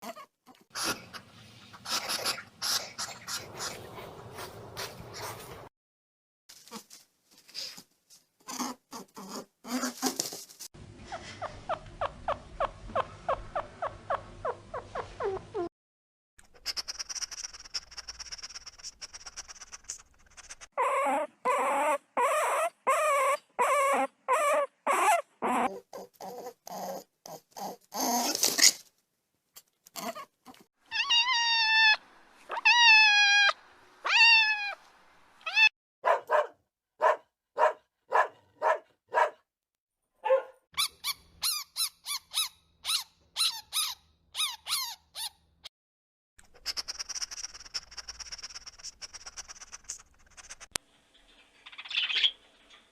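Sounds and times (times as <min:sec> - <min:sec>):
animal repeated cries: 0:20.4 - 0:28.8, 0:30.9 - 0:34.8, 0:35.4 - 0:35.7, 0:46.6 - 0:50.6
animal short squeaks: 0:46.6 - 0:50.6.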